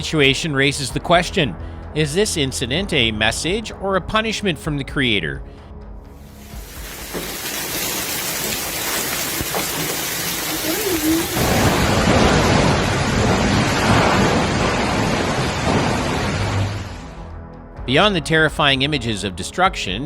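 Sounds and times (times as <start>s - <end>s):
heavy rain pelting surfaces: 6.2s - 17.2s.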